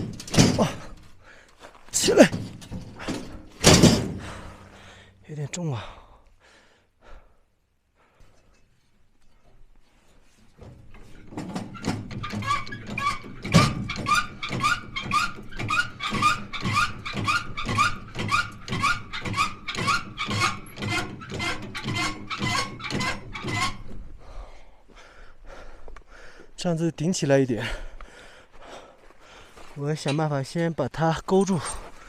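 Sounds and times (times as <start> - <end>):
jack strokes squeaking: 0.0 - 4.9, 8.3 - 24.0.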